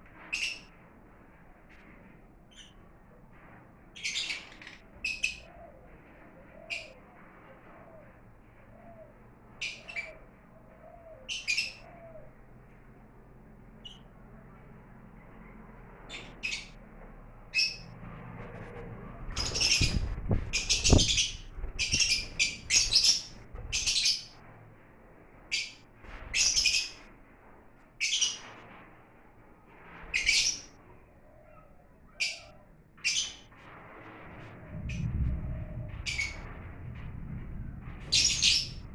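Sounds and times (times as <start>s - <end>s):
dull low thuds: 19.2s - 23.7s, 34.5s - 38.9s
lovebirds chirping: 19.4s - 24.3s, 38.0s - 38.8s.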